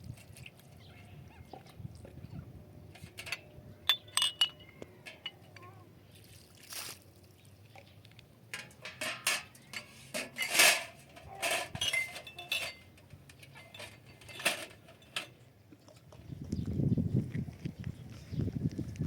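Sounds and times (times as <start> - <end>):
dishes and utensils clinking: 3.0 - 5.7, 8.6 - 15.4
loud clanks: 8.6 - 15.3.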